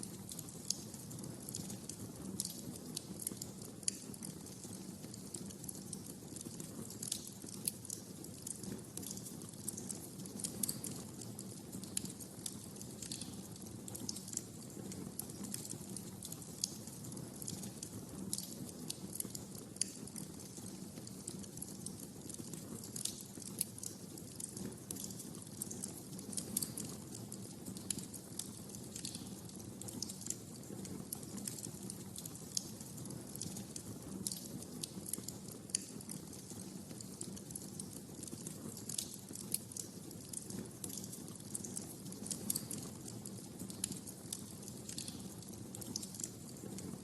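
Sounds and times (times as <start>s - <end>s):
wood fire crackling and popping: 0.0s - 47.0s.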